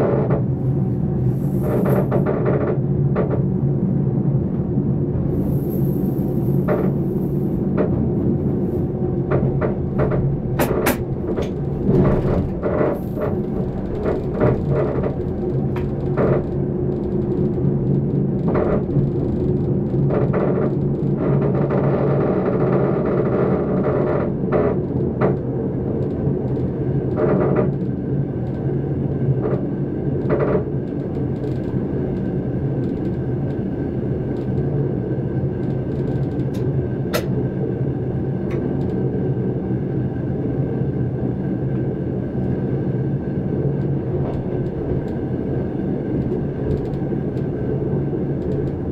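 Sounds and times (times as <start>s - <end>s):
train motor hum: 0.0s - 3.6s, 4.5s - 17.0s, 36.3s - 39.1s, 41.7s - 48.9s.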